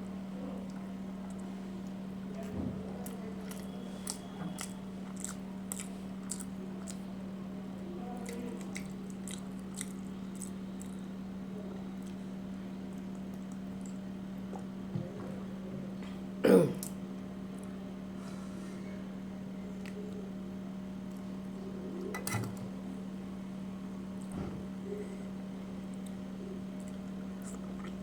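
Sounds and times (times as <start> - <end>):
low electrical hum: 0.0 - 28.0
person eating: 3.0 - 7.0, 8.2 - 11.0, 26.8 - 28.0
person clearing throat: 16.4 - 16.9.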